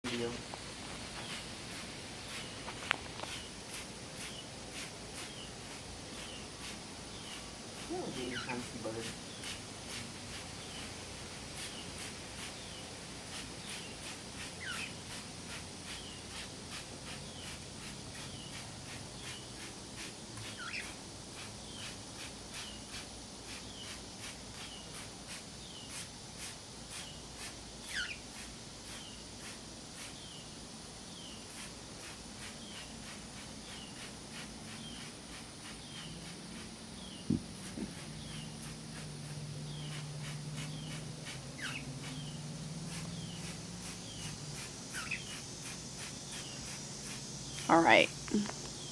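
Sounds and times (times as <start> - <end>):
spray bottle spritzing: 1.0 - 10.9, 11.5 - 30.3, 31.5 - 47.7
cockatiel chirping: 8.1 - 8.7, 14.6 - 15.0, 20.6 - 20.9, 27.9 - 28.2, 41.6 - 42.3, 44.9 - 45.4.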